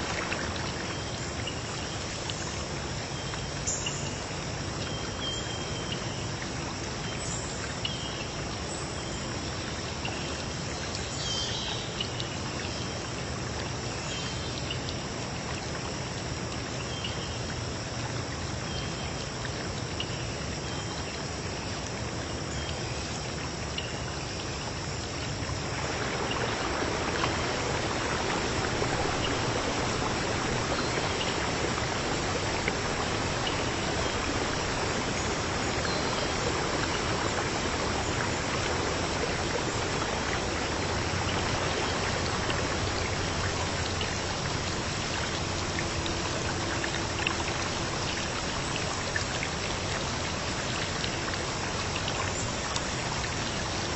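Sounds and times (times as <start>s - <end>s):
flowing stream: 0.0s - 53.9s
insects chirring: 18.5s - 51.4s.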